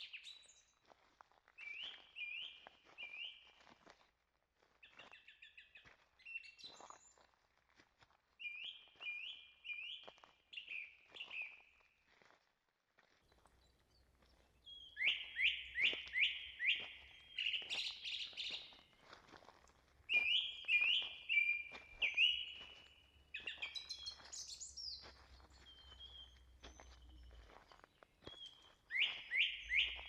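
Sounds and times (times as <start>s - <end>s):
songbird singing: 1.6s - 3.4s, 8.4s - 11.6s, 13.3s - 19.0s, 20.0s - 30.0s.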